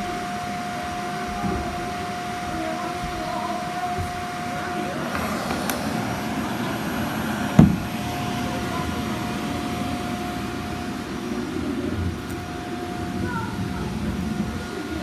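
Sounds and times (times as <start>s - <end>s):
robot vacuum whirring: 4.3s - 12.8s.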